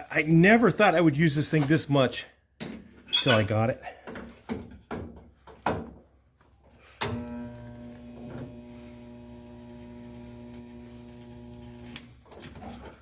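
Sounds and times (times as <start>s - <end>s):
spot welder transformer humming: 7.1s - 12.1s.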